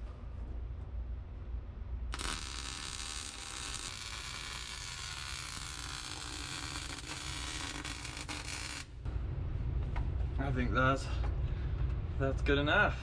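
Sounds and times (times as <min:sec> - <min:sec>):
arc welder crackling and sizzling: 0:02.1 - 0:09.0.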